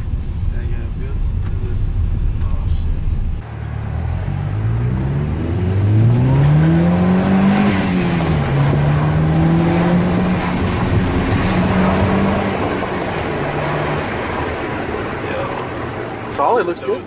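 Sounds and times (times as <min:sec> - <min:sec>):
car engine accelerating hard: 0:03.4 - 0:17.0.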